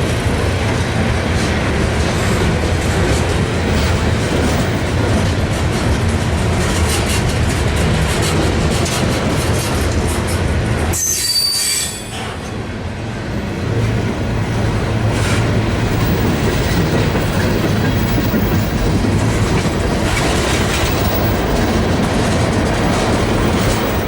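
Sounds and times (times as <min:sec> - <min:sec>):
train wheels rumbling on rail: 0:00.0 - 0:24.0
high-pitched wheel squeal: 0:11.0 - 0:12.3.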